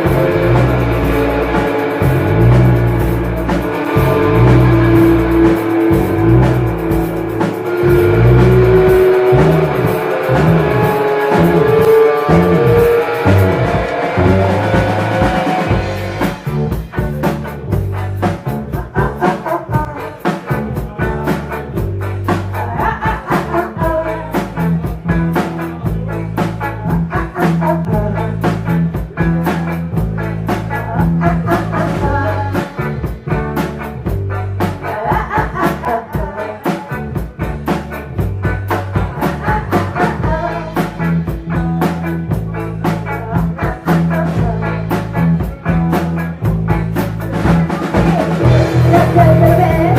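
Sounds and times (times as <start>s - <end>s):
bass notes: 0.0s - 49.9s
drum kit beat: 0.0s - 49.9s
electric guitar: 0.0s - 49.9s.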